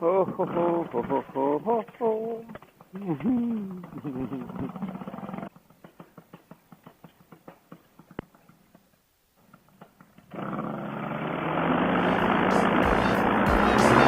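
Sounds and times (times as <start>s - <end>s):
paramotor engine running: 0.4s - 5.5s, 10.2s - 14.0s.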